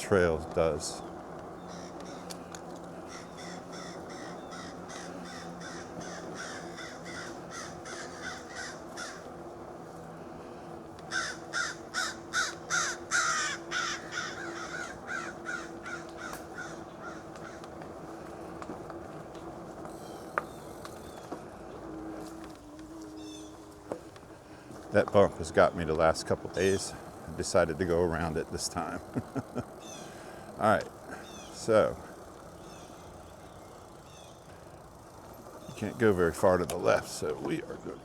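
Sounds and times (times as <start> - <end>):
steady low hum: 0.0 - 38.0
bird harsh repeated calls: 1.0 - 9.4, 11.1 - 18.4, 29.8 - 30.5, 31.1 - 31.6.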